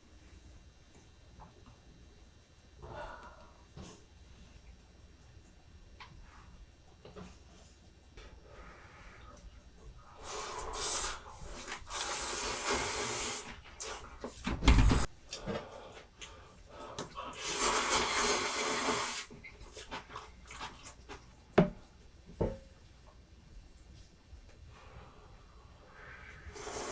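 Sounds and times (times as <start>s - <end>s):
cooking hiss: 10.0s - 14.0s, 16.8s - 19.4s, 24.8s - 26.9s
heavy thump: 14.5s - 15.1s.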